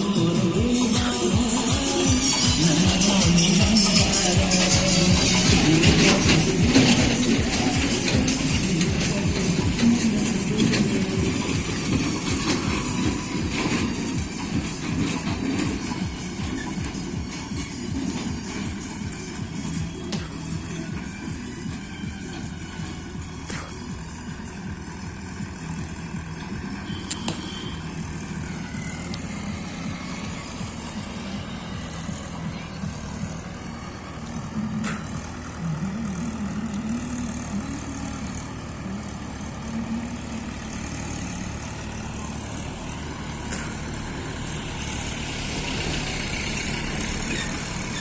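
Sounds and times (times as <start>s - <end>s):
tractor diesel engine running: 0.0s - 48.0s
sharp clicks: 26.3s - 28.0s.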